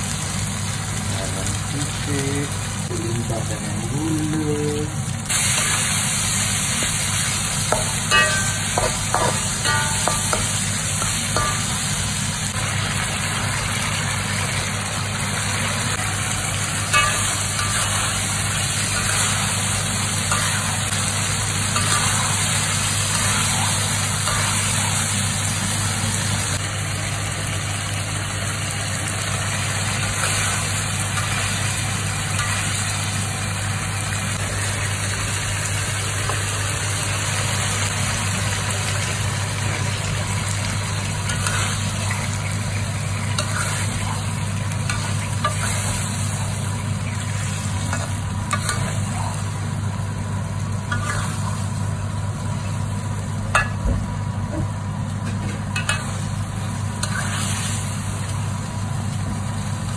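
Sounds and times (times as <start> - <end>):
sauce sizzling in a wok: 0.0 - 59.9
metal spatula scraping: 43.4 - 44.0, 50.9 - 51.4, 57.0 - 57.6.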